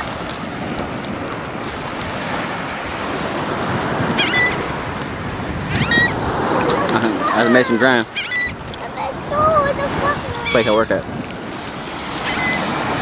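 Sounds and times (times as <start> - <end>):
ocean surf washing on beach: 0.0 - 13.0
wind on microphone: 0.0 - 13.0
short bird calls: 4.2 - 4.6, 5.7 - 8.8, 10.3 - 10.9, 12.2 - 12.8.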